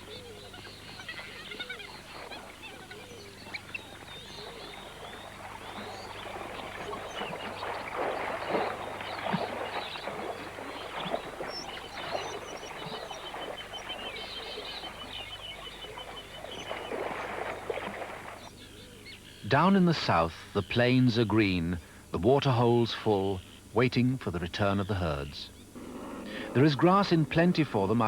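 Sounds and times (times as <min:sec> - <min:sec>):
animal and bird calls: 0:00.0 - 0:19.6, 0:24.6 - 0:28.0.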